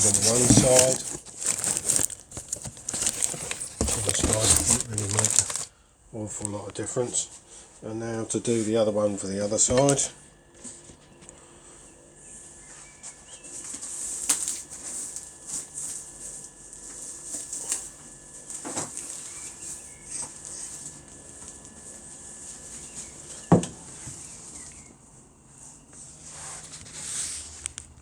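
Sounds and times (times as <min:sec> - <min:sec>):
packing material crinkling: 0:00.0 - 0:05.7, 0:13.8 - 0:21.6.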